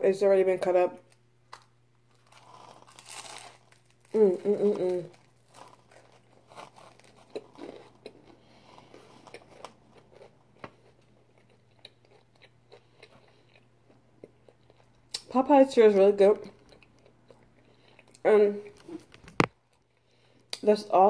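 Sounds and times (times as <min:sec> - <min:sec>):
person chewing food: 0:01.5 - 0:15.3, 0:16.4 - 0:20.6.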